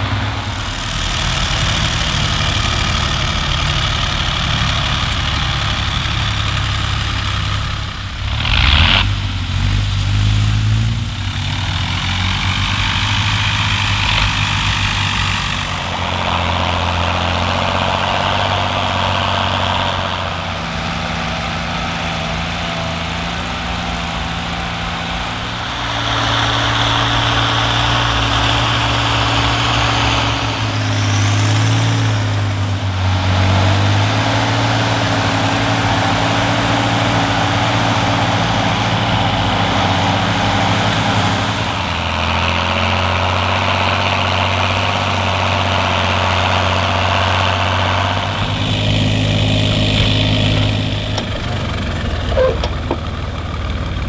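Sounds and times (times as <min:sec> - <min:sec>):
loud rush of noise: 0:00.0 - 0:07.8
diesel farm machinery running: 0:00.0 - 0:54.0.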